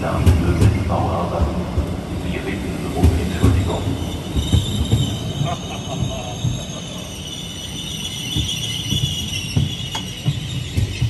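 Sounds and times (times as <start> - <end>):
train wheels clattering: 0.0 - 11.0
high-pitched metallic squeal: 3.6 - 11.0.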